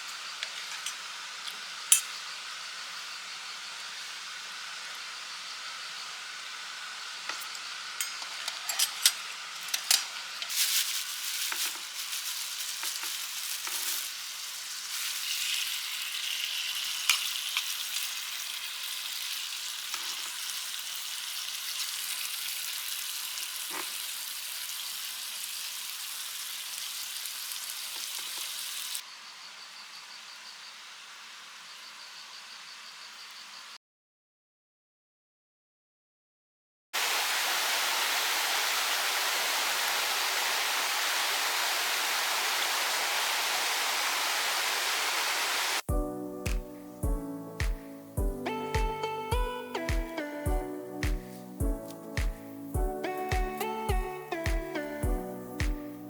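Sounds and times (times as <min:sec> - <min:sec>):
steak sizzling in a pan: 0:00.0 - 0:29.0, 0:45.8 - 0:56.0
utensils clinking: 0:00.4 - 0:02.2, 0:07.3 - 0:11.8
pulsing insect chirps: 0:01.2 - 0:07.8, 0:29.0 - 0:33.8.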